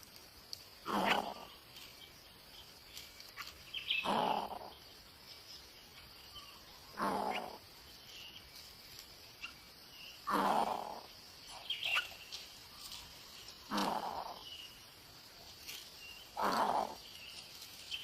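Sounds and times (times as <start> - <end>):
nestlings hissing calls: 0.9 - 1.9, 3.2 - 4.7, 6.8 - 8.7, 9.4 - 14.9, 15.6 - 18.0.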